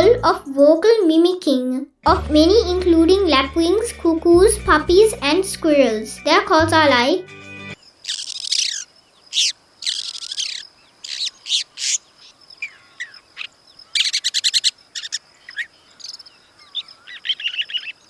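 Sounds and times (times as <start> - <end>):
bird harsh scratchy calls: 7.8 - 18.0.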